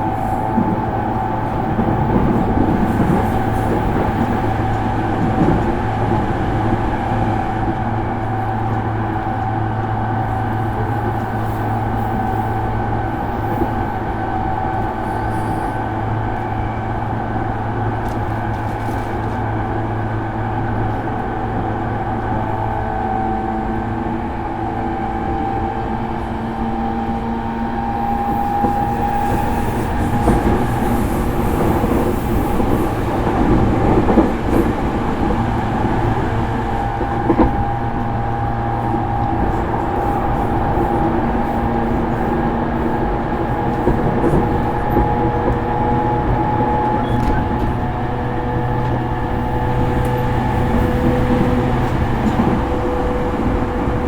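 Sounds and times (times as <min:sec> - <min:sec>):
wheel and rail rumble: 0:00.0 - 0:54.0
electric train motor whine: 0:25.4 - 0:54.0
wheels clicking over rail joints: 0:28.3 - 0:54.0.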